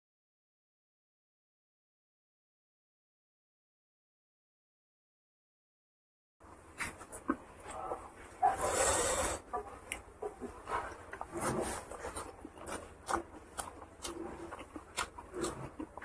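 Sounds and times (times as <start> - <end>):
person chewing food: 6.5 - 16.0.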